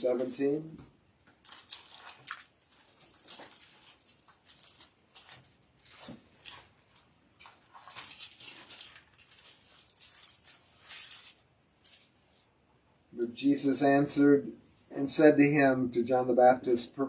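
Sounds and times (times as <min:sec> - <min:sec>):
faint paper rustling: 0:00.2 - 0:12.6.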